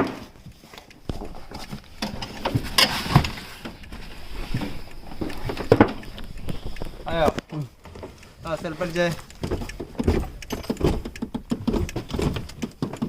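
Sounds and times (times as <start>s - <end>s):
knocks scrapes and shuffling: 0.0s - 11.2s
sharp knocks: 9.3s - 13.0s.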